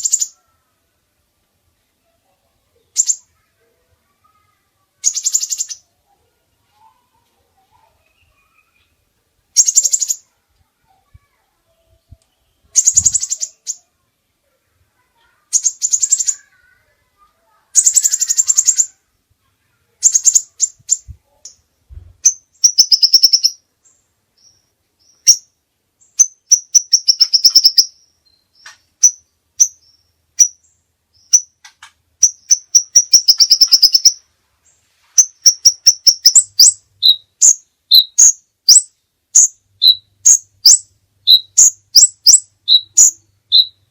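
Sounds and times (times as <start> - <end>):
songbird singing fast trills: 5.0 - 5.9, 9.6 - 10.3, 12.0 - 13.9, 15.4 - 16.6, 17.8 - 19.0, 20.0 - 21.6, 22.2 - 31.6, 32.2 - 34.2, 35.2 - 43.9.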